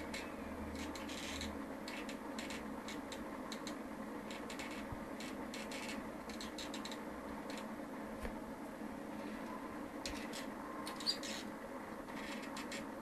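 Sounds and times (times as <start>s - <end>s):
small clicks and scratches: 0.0s - 7.7s, 12.1s - 12.9s
low electrical hum: 0.0s - 13.0s.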